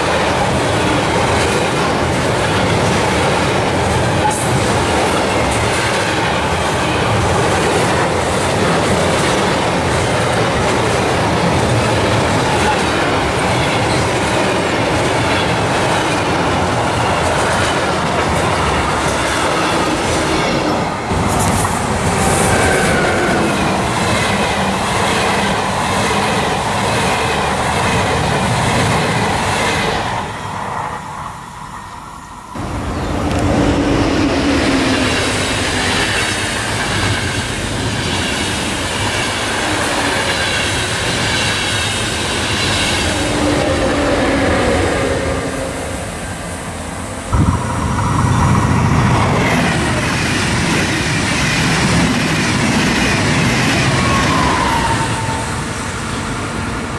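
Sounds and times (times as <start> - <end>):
trains passing on rails: 0.0 - 56.9.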